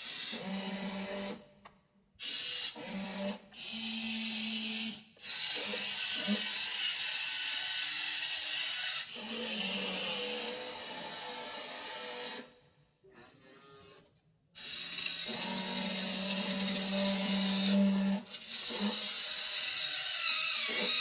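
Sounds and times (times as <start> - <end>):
small electric motors whirring: 13.4 - 21.0.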